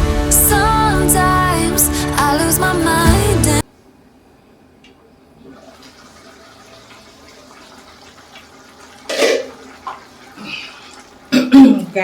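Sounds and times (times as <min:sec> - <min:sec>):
beans simmering in pot: 0:05.4 - 0:11.3.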